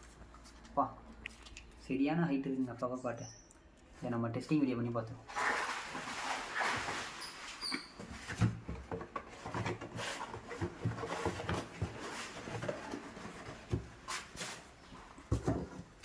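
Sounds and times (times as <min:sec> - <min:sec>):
cardboard boxes knocking and rubbing: 0:08.0 - 0:16.0.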